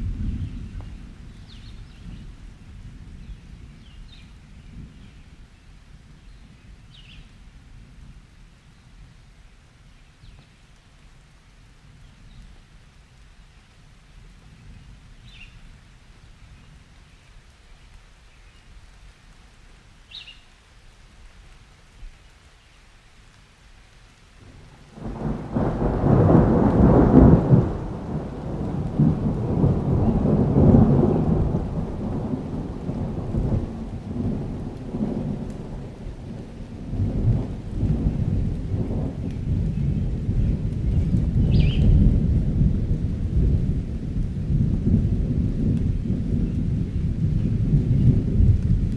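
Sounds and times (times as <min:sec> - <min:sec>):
rolling thunder: 0:00.0 - 0:05.3, 0:24.5 - 0:48.9
light rain hissing: 0:00.0 - 0:48.9.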